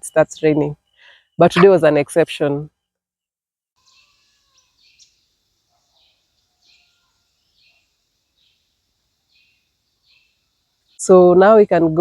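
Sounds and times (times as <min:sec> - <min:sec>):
high bird chirps: 0:03.8 - 0:05.2.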